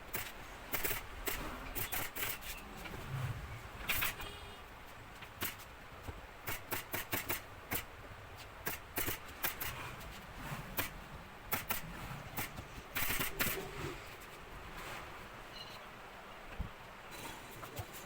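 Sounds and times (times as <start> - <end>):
sharp clicks: 6.4 - 7.9, 8.6 - 9.8, 10.8 - 13.7.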